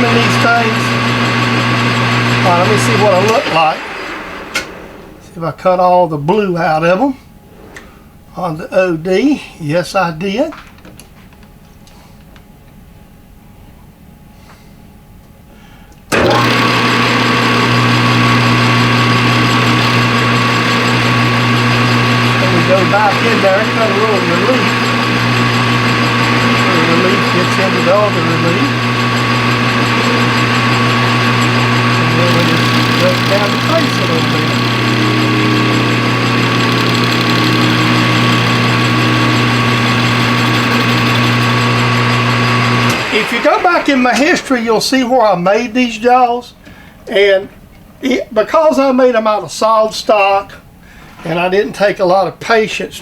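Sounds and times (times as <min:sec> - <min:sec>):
metal lathe running: 0:00.0 - 0:05.4, 0:16.1 - 0:45.2.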